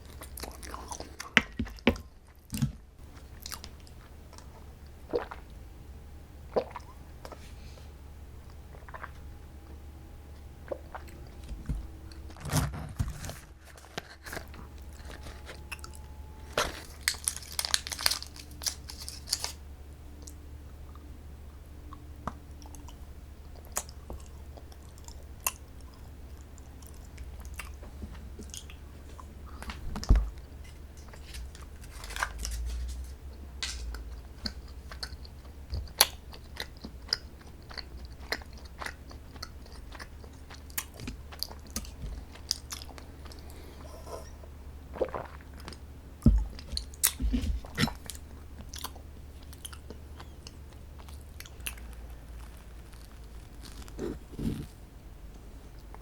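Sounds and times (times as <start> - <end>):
person chewing and crunching: 0.0 - 5.5, 6.5 - 9.8, 10.6 - 19.6, 22.2 - 54.7
steady low hum: 0.0 - 56.0.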